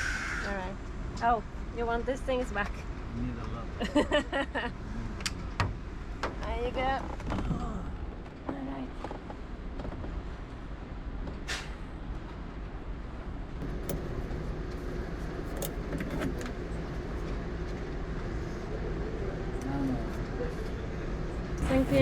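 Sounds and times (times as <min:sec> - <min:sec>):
lorry engine idling: 0:12.8 - 0:22.0.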